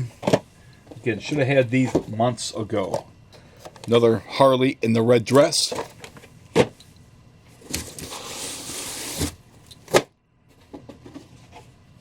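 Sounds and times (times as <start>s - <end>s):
cardboard packaging rustling: 7.6s - 9.4s.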